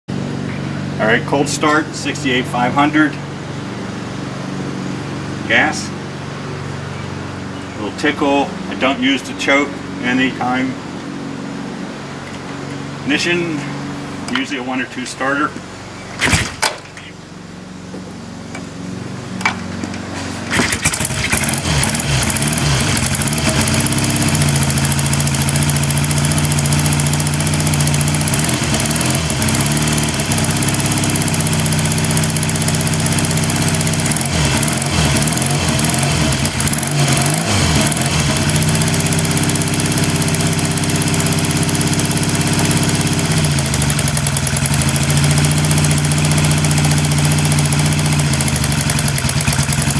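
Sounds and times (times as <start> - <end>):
motorcycle engine idling: 17.0 - 49.9.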